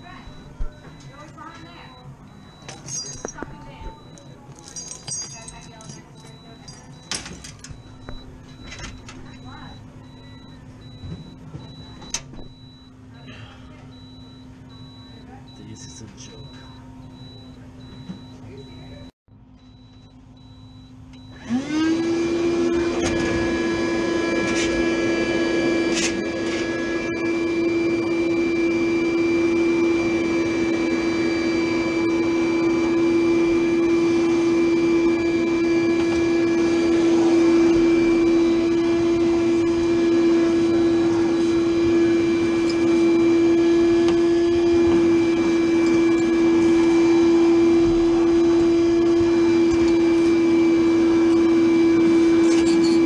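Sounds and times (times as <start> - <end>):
electric motor whining: 21.4 - 53.0.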